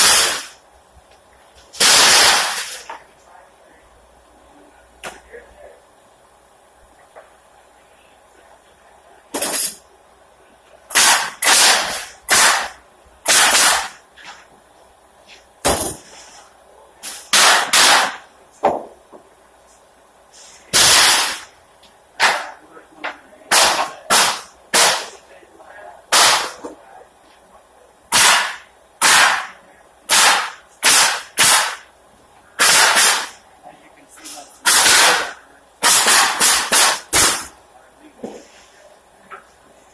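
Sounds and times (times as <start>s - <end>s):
nail gun shots into wood: 1.8s - 2.8s, 10.9s - 14.0s, 17.3s - 18.2s, 20.7s - 21.5s, 22.2s - 22.5s, 23.5s - 25.1s, 26.1s - 26.7s, 28.1s - 31.8s, 32.6s - 33.4s, 34.7s - 37.5s.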